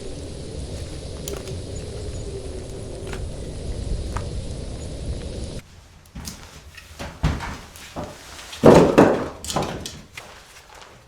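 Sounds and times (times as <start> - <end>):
knocks and bumps: 6.2 - 10.2
clattering: 6.2 - 10.4.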